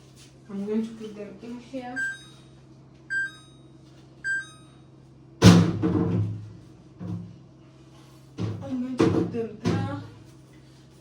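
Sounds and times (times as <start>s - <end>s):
refrigerator hum: 0.0s - 11.0s
refrigerator beeping: 1.9s - 2.5s, 3.1s - 4.9s.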